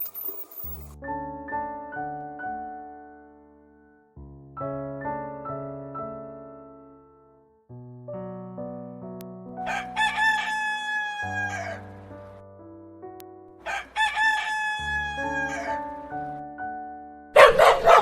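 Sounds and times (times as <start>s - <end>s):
light piano music: 0.0s - 18.0s
rooster crowing: 9.6s - 11.9s, 13.6s - 15.8s
dog barking: 17.4s - 18.0s.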